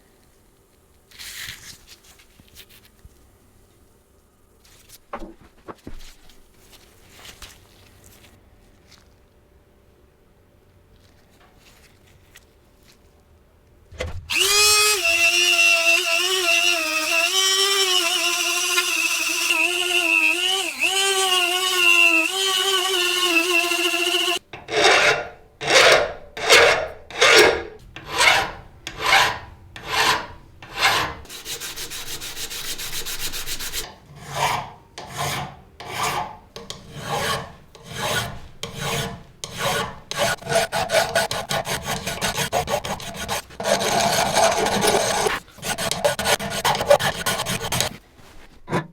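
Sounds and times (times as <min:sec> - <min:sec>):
hand file rasping on metal: 0:14.3 - 0:48.0.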